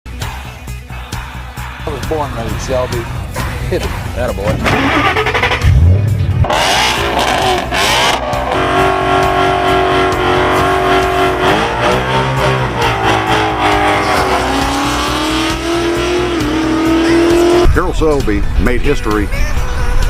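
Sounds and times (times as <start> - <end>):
car engine accelerating hard: 4.5 - 17.8.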